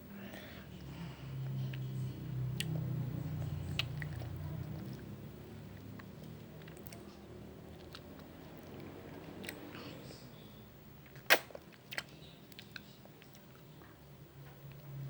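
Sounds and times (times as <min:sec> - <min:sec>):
person chewing ice cream: 0:00.8 - 0:09.9, 0:11.0 - 0:14.0.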